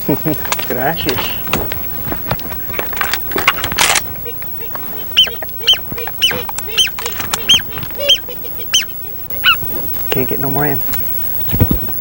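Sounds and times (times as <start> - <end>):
handling clicks and knocks: 0.0 - 5.6
waterfowl honking calls: 0.0 - 11.6.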